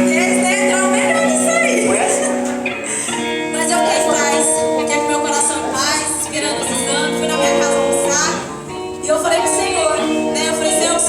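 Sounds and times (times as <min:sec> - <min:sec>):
instrumental accompaniment: 0:00.0 - 0:11.0.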